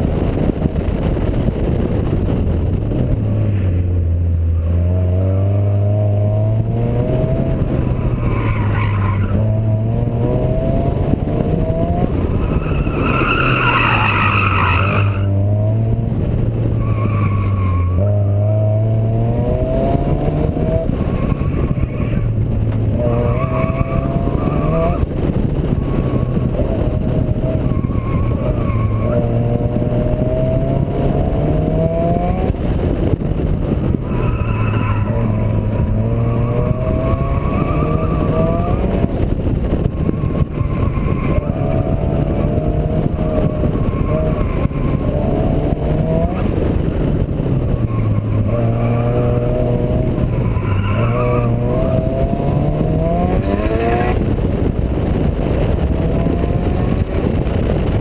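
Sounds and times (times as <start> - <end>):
steady rush of noise: 0.0 - 58.0
turbocharged car engine revving: 1.6 - 58.0.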